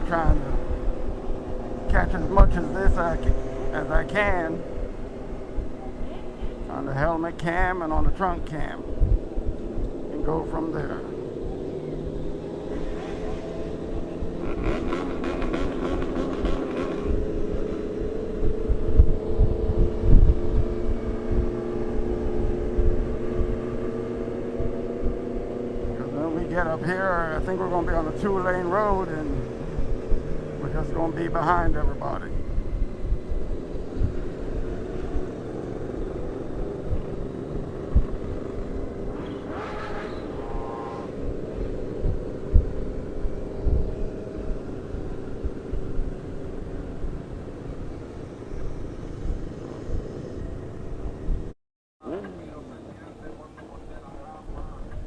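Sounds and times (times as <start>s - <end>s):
wind buffeting microphone: 0.0s - 51.6s
motorcycle engine cruising: 0.0s - 55.0s
wind thumps on microphone: 8.8s - 10.0s, 16.4s - 23.9s, 36.6s - 40.3s, 41.1s - 47.5s.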